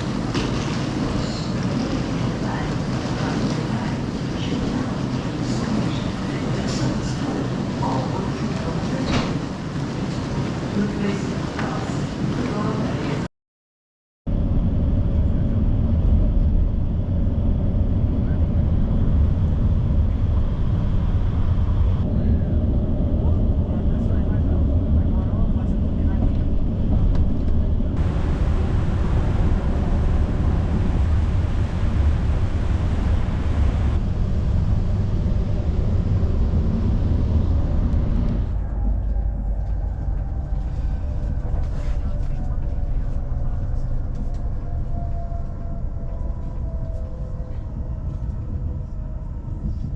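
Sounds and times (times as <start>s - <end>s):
vehicle rumble from inside: 14.3s - 49.9s
bus engine droning: 15.2s - 49.8s
faint steady hum: 28.0s - 38.4s.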